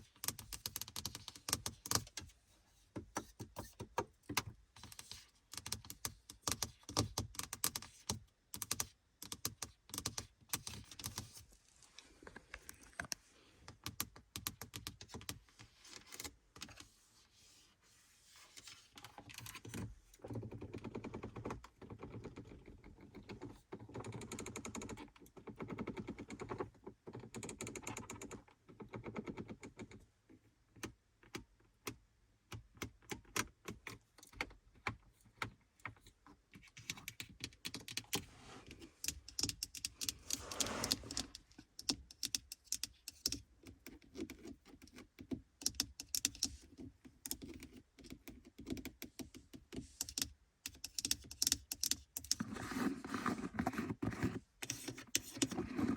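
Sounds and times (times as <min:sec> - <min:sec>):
fingernails scratching: 0:38.1 - 0:41.9, 0:50.0 - 0:55.9.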